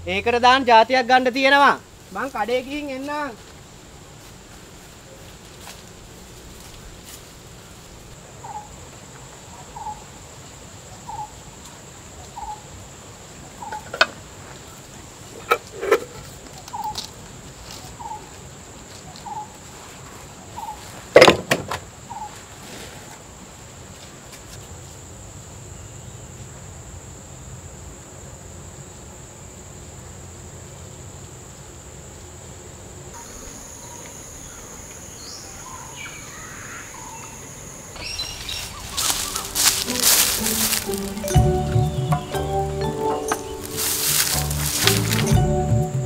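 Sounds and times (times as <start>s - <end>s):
insect drone: 0.0s - 46.0s
bird calling a short note: 33.2s - 41.2s.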